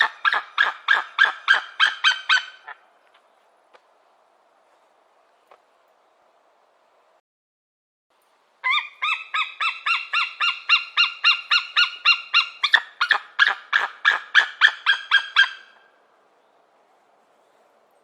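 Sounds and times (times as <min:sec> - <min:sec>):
falcon harsh alarm calls: 0:00.0 - 0:02.8, 0:08.6 - 0:15.8.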